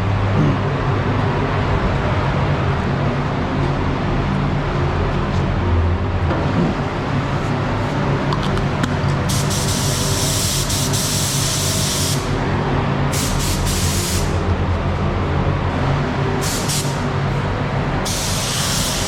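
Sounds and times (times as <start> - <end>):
steady low hum: 0.0 - 19.0
spray can hissing: 9.3 - 12.3.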